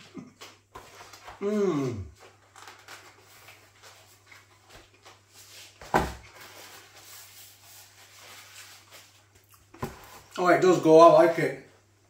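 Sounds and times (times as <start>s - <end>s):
person chewing: 9.4s - 9.8s.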